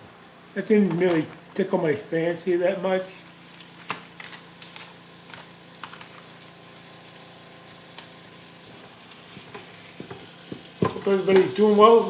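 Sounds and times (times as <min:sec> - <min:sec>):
meat sizzling with crackles: 0:03.0 - 0:12.0.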